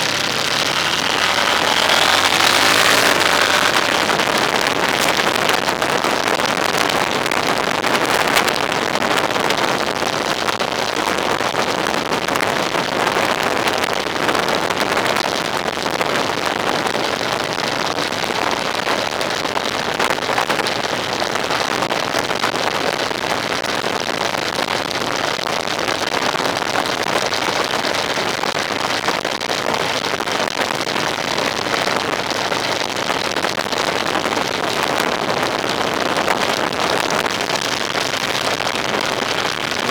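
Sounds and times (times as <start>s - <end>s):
vehicle wind and road noise: 0.0s - 23.2s.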